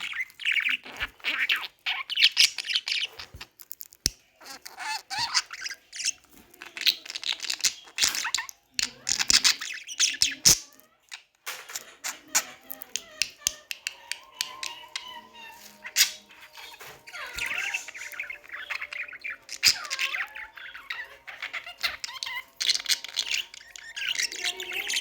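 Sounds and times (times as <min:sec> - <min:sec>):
budgerigar chattering and warbling: 0:11.8 - 0:25.0.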